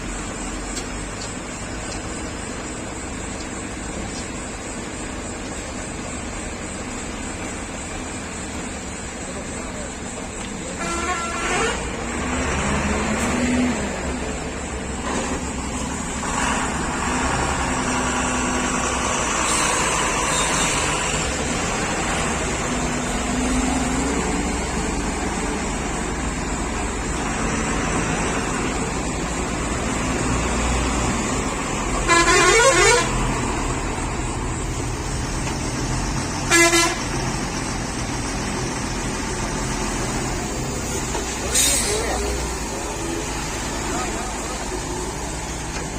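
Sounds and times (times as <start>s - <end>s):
road noise: 0.0s - 45.9s
truck engine running: 0.0s - 45.9s
truck horn blasts: 10.8s - 12.4s, 32.0s - 33.4s, 36.4s - 37.2s.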